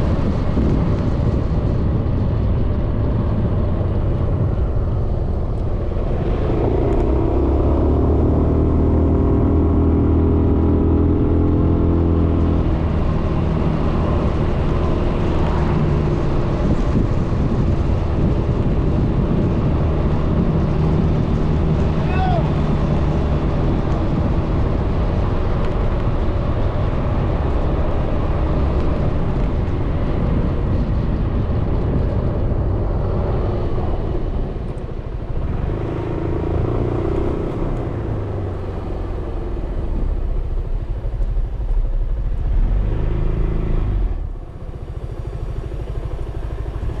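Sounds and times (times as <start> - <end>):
road rumble: 0.0 - 47.0
wind on microphone: 0.0 - 47.0
scooter engine running: 43.9 - 47.0.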